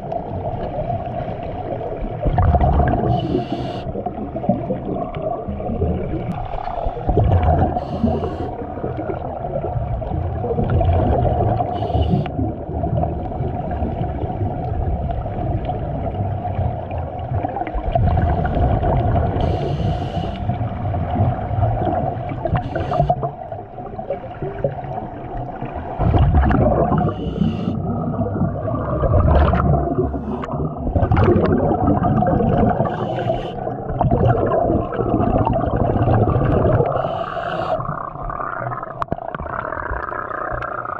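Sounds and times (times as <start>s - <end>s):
muffled water rushing and bubbling: 0.0s - 40.9s
bubbly hisses: 6.6s - 8.7s, 19.4s - 20.6s, 26.1s - 38.0s.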